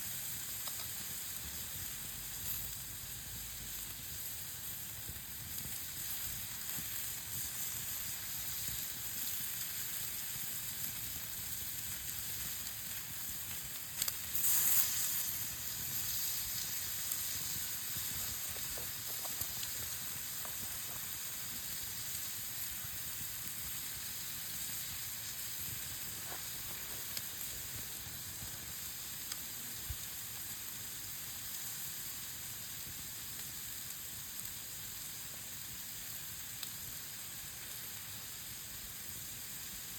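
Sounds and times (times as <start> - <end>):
fire crackles: 0.0 - 39.9
meat sizzling over fire: 0.0 - 39.9.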